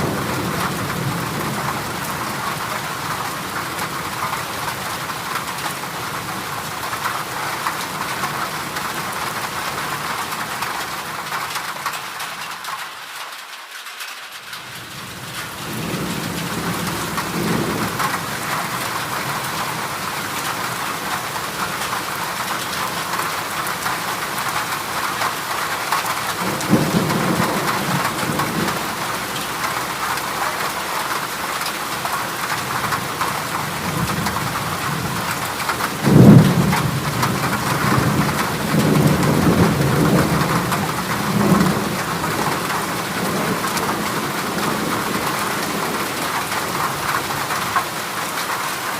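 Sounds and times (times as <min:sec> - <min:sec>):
heavy rain on metal roof: 0:00.0 - 0:48.9
thunder rumbling: 0:15.0 - 0:22.2, 0:26.2 - 0:30.1, 0:33.6 - 0:47.7.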